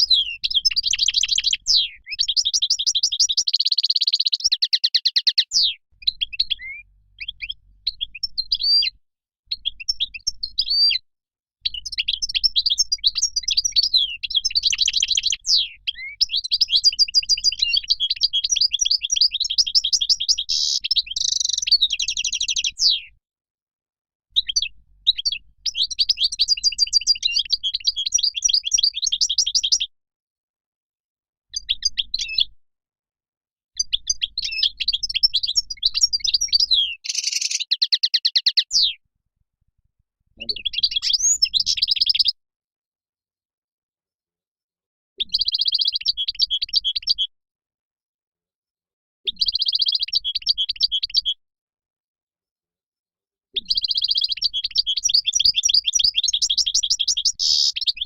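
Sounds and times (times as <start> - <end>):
bird chirping song: 0.0 - 23.2, 24.3 - 29.9, 31.5 - 32.6, 33.8 - 39.0, 40.4 - 42.4, 45.2 - 47.3, 49.3 - 51.4, 53.5 - 58.0.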